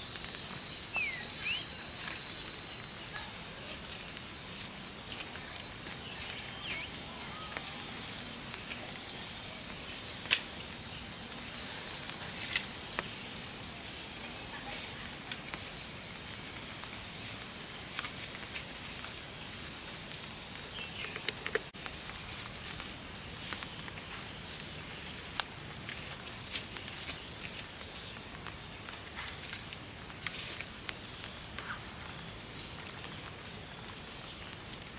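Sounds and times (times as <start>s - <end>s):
high-pitched insect drone: 0.0s - 27.2s.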